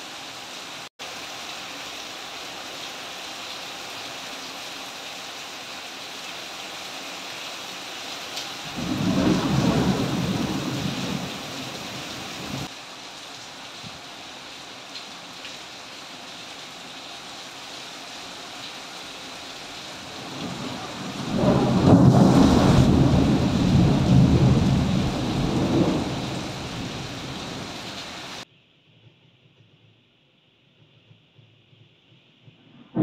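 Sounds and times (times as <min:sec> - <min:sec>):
steady rain: 0:00.0 - 0:28.4
rolling thunder: 0:08.7 - 0:12.7, 0:20.2 - 0:27.9.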